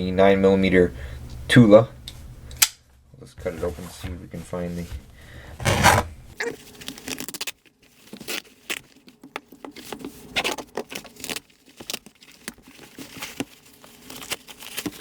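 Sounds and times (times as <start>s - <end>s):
fabric rustling and tearing: 5.6s - 6.1s.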